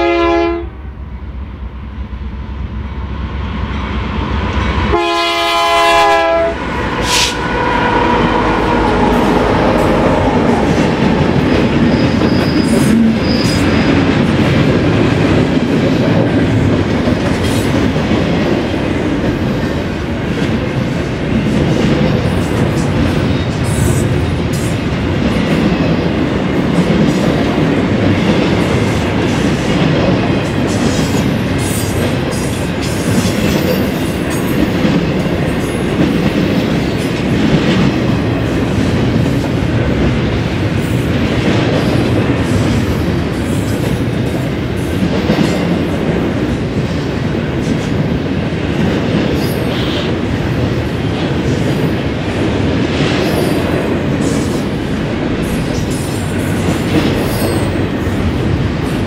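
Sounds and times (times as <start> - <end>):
freight train rolling past: 0.0 - 59.0
high wheel squeals: 11.8 - 13.9.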